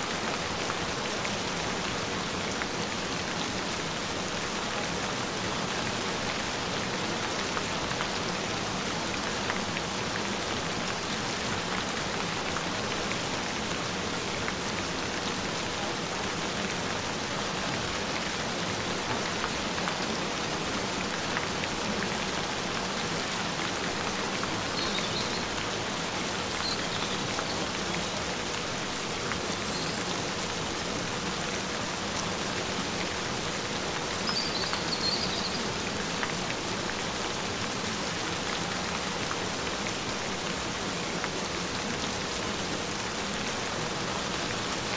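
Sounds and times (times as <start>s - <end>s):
gentle rain falling: 0.0s - 44.9s.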